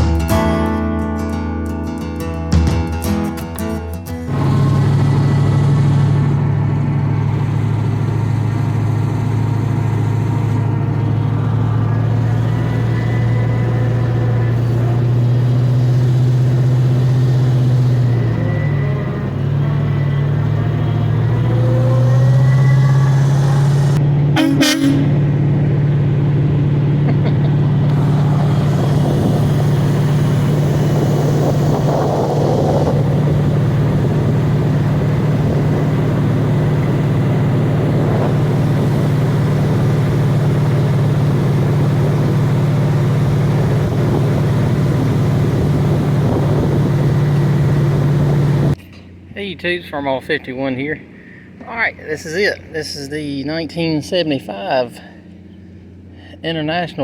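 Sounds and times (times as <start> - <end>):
truck engine running: 4.2 - 50.0, 51.0 - 56.2.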